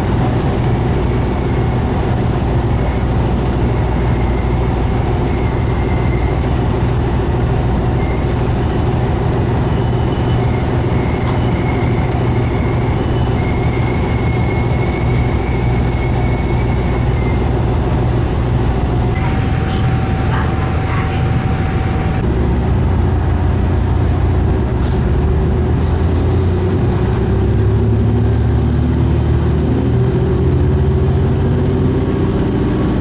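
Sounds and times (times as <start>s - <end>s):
diesel train rumbling: 0.0s - 33.0s
wheel squeal: 0.7s - 8.7s, 9.5s - 17.8s.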